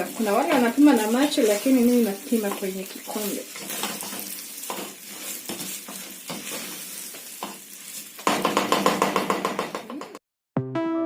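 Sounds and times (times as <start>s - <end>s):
food sizzling in a pot: 0.0s - 10.2s
rapid crackling sizzle: 0.0s - 10.2s
piano music: 10.6s - 11.0s.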